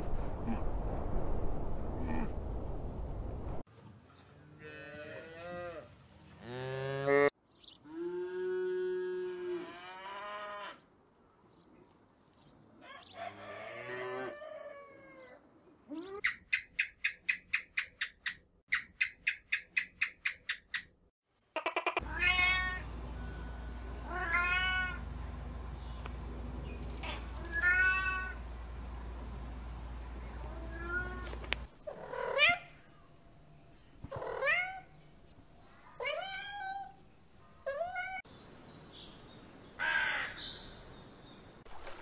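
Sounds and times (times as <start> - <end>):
calf mooing: 4.4 - 7.3, 7.9 - 10.8
cat meowing: 22.0 - 22.8, 24.1 - 25.0, 27.0 - 28.4, 30.5 - 31.3
steady low hum: 22.0 - 31.7.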